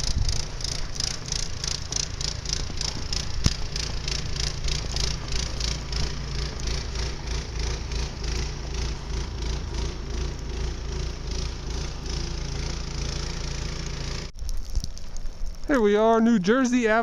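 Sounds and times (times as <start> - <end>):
wind buffeting microphone: 0.0 - 9.9
footsteps crunching through snow: 0.0 - 13.0.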